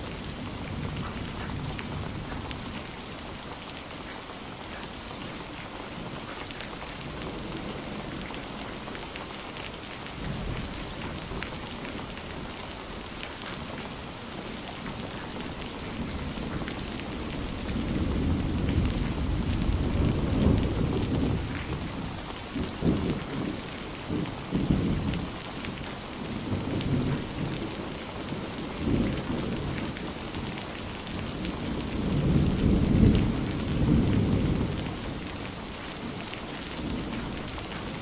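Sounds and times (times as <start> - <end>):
steady rain falling: 0.0 - 38.0
thunder rumbling: 14.6 - 38.0.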